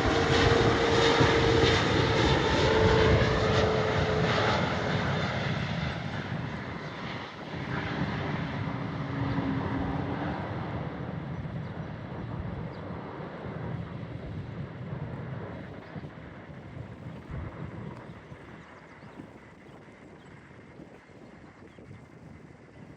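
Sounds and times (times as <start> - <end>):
jet airliner engines roaring: 0.0 - 22.7.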